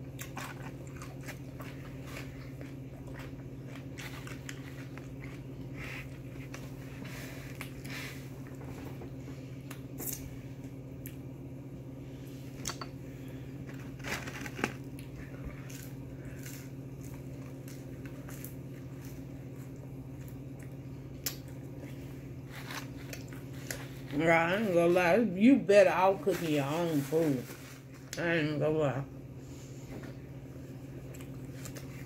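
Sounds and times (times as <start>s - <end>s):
person chewing food: 0.0s - 8.8s, 13.7s - 24.1s.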